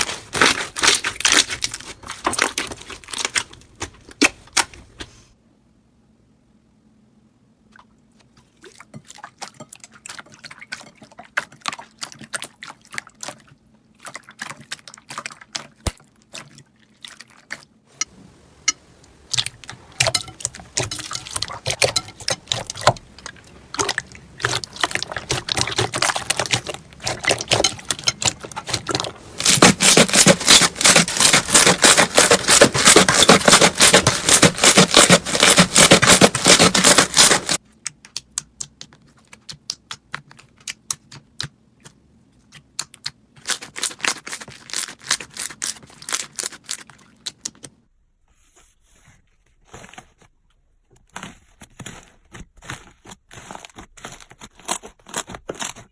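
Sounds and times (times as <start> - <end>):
slime squishing with wet pops: 0.0 - 4.7, 8.7 - 47.8.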